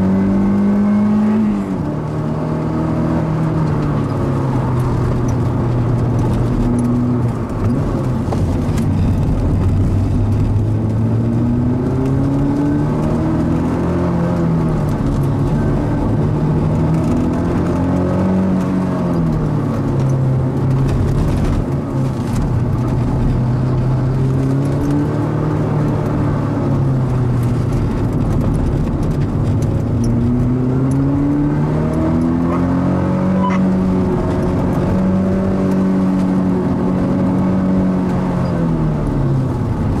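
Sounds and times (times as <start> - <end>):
car engine revving hard: 0.0 - 19.8, 29.8 - 40.0.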